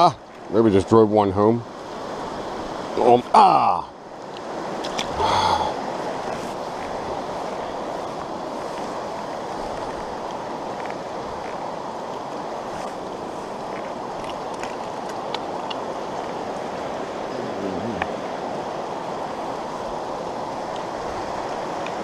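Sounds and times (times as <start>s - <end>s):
stream water flowing over rocks: 0.0s - 22.0s.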